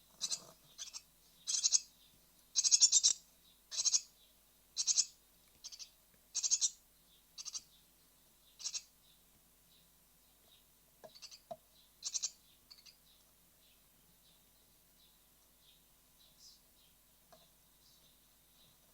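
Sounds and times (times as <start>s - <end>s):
nestlings begging calls: 0.2s - 1.9s, 2.6s - 4.2s, 4.8s - 6.8s, 7.4s - 7.8s, 8.6s - 9.0s, 11.1s - 13.0s.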